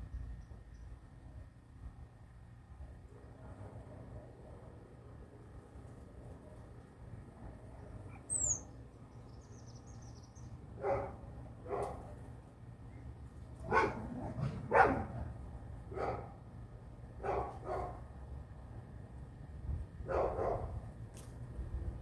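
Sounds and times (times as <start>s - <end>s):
small bird chirping: 8.1s - 10.5s
dog barking: 10.8s - 12.0s, 13.7s - 15.2s, 15.9s - 16.4s, 17.2s - 18.0s, 20.1s - 20.8s.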